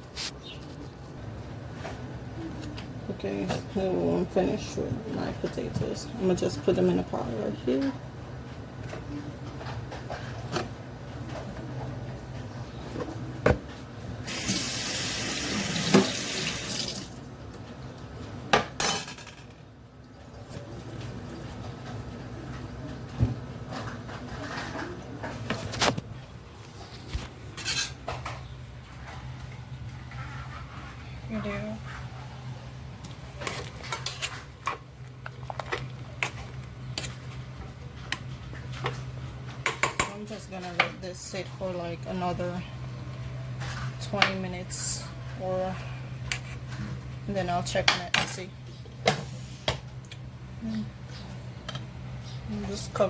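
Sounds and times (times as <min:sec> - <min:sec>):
kitchen tap running: 0:14.2 - 0:17.2
pots and utensils clinking: 0:18.6 - 0:19.6.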